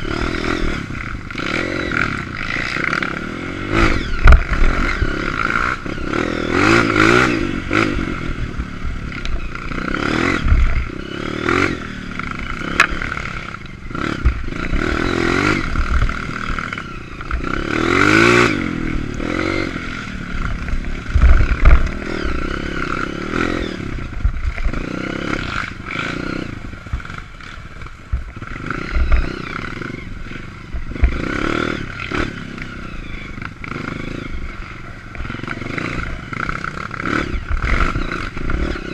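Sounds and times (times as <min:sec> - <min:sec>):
motorcycle engine revving: 0:00.0 - 0:38.9
bike knocking and rattling: 0:09.0 - 0:38.9.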